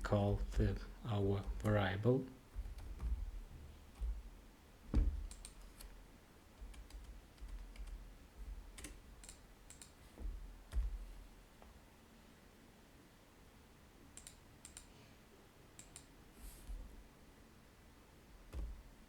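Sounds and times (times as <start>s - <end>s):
dull knocks: 2.6s - 5.4s
keyboard key clicks: 5.0s - 6.0s.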